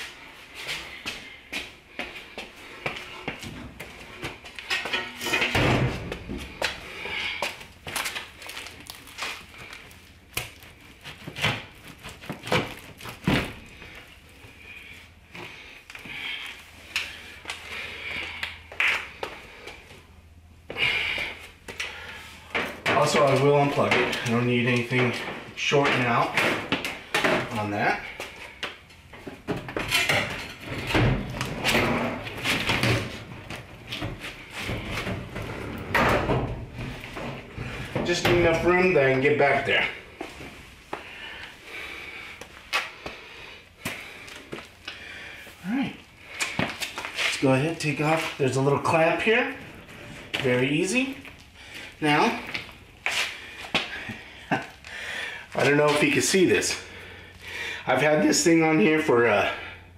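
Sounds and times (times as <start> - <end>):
heavy thuds: 4.9 - 7.0.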